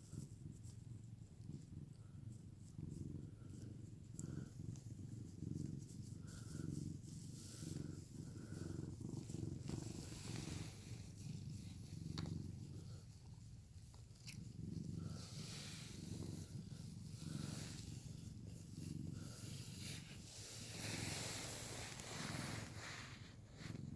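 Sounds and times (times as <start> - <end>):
cat purring: 0.0 - 23.9.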